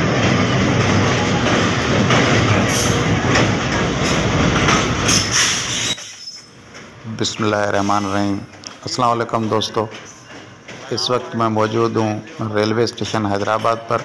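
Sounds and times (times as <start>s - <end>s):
locomotive engine hum: 0.0s - 7.4s
wheel and rail noise: 0.0s - 14.0s
high squeaks: 5.0s - 6.6s.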